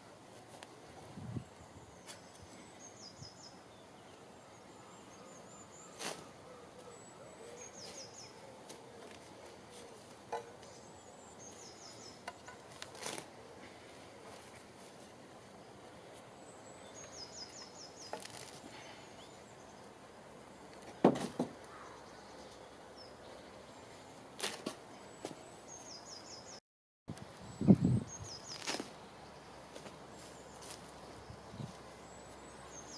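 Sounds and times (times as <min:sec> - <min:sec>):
small bird singing: 0:01.2 - 0:09.2, 0:09.8 - 0:12.8, 0:15.8 - 0:20.0, 0:24.9 - 0:26.6, 0:27.4 - 0:32.9.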